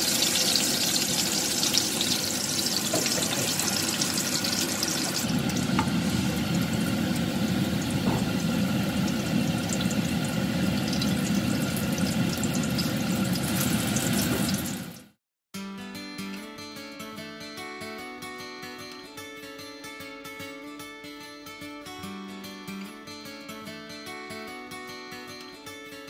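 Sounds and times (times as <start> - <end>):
food sizzling in oil: 0.0 - 15.2
acoustic guitar music: 15.6 - 26.0.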